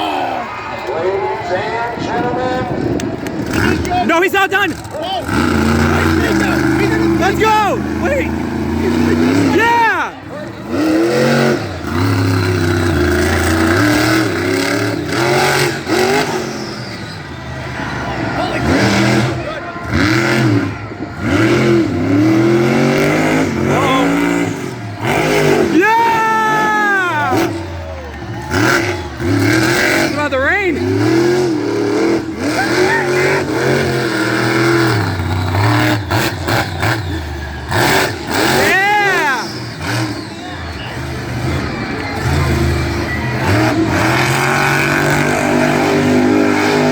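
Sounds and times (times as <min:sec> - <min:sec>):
truck engine revving hard: 0:01.4 - 0:46.9.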